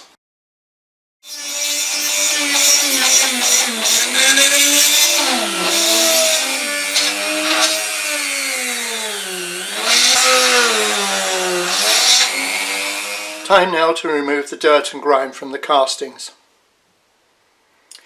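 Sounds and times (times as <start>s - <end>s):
power drill drilling into metal: 1.3s - 13.5s.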